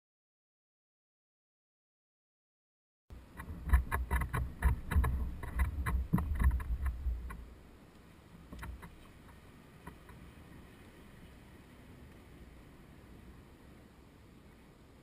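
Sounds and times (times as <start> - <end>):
rapid clicks and knocks: 3.3 - 7.4.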